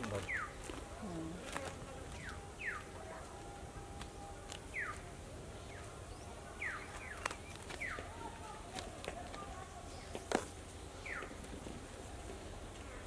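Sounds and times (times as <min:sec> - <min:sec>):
bird chirping: 0:00.0 - 0:00.6, 0:02.1 - 0:02.9, 0:04.7 - 0:08.2, 0:11.0 - 0:11.4.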